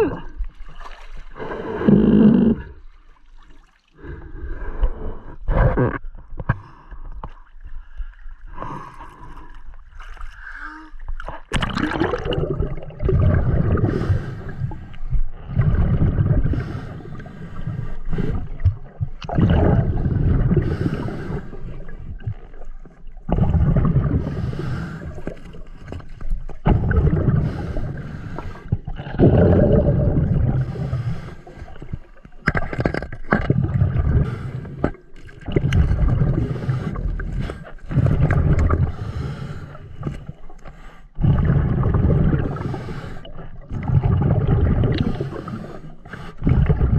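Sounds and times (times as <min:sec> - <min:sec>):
underwater exhaled bubbles rumbling: 0:00.0 - 0:03.0, 0:11.1 - 0:46.9.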